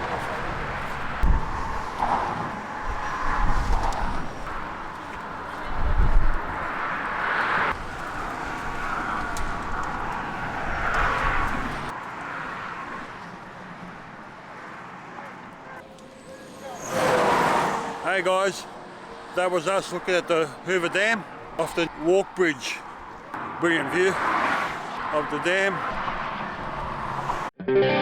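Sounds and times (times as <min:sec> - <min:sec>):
wind rumble on microphone: 0:00.0 - 0:11.9
vehicles passing: 0:00.0 - 0:27.6.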